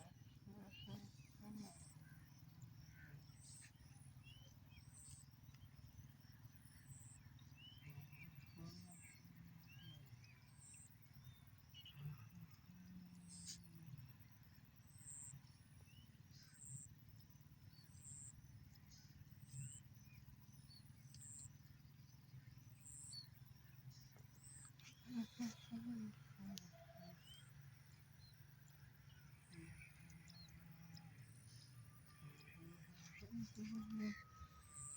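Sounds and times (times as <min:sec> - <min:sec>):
low calls: 0:24.4 - 0:27.5, 0:32.4 - 0:34.9.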